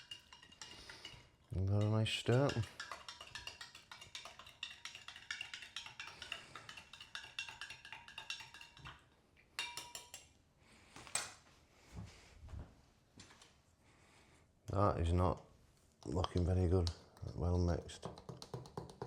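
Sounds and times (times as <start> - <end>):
spoon clinking against glass: 0.0 - 9.0, 9.6 - 10.3.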